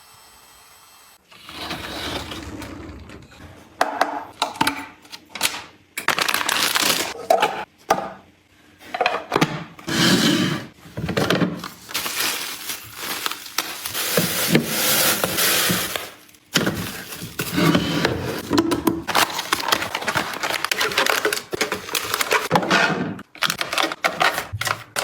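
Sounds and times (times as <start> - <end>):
clicks and knocks of household items: 3.8 - 8.2, 11.0 - 25.0
rustling: 11.6 - 17.8.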